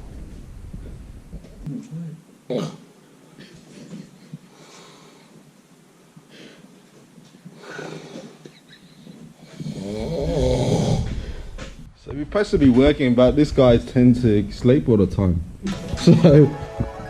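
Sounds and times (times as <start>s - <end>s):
person breathing softly: 3.4s - 5.4s, 7.5s - 9.3s, 11.0s - 11.8s
person snoring: 9.5s - 11.5s.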